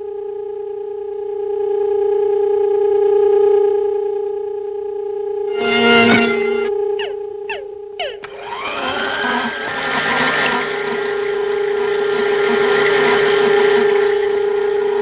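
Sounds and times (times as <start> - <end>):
constant hum: 3.1 - 15.0
electronic falling chirps: 5.5 - 8.9
rising whirring sweep: 5.5 - 10.1.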